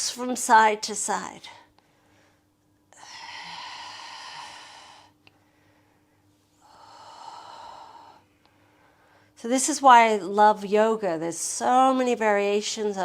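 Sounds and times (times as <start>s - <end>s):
long breaths: 1.8s - 9.4s.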